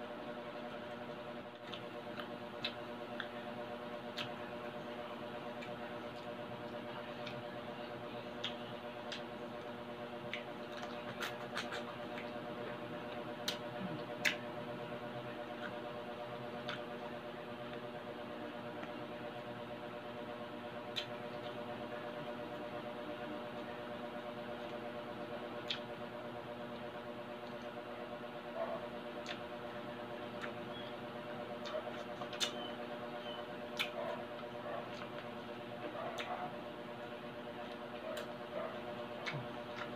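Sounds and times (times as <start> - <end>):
steady background hum: 0.0 - 39.9
crunchy skin crackling: 0.8 - 3.4, 10.3 - 12.5, 31.4 - 32.8, 33.6 - 39.9
chewing: 1.5 - 3.4, 4.1 - 4.4, 8.3 - 9.3, 10.3 - 12.4, 15.5 - 15.8, 25.6 - 25.9, 30.2 - 30.9, 31.5 - 39.9.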